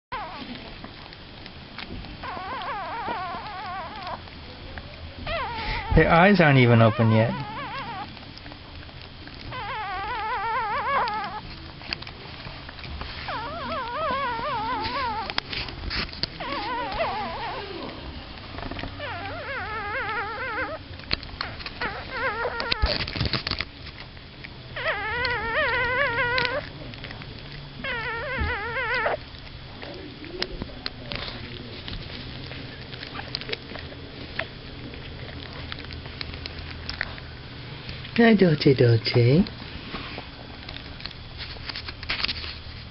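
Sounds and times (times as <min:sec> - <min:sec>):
puppies crying in high squeals: 0:00.1 - 0:00.6, 0:02.2 - 0:04.3, 0:05.2 - 0:08.2, 0:09.4 - 0:11.4, 0:13.1 - 0:15.5, 0:16.4 - 0:23.1, 0:24.7 - 0:26.8, 0:27.8 - 0:29.4
rustling: 0:00.1 - 0:42.9.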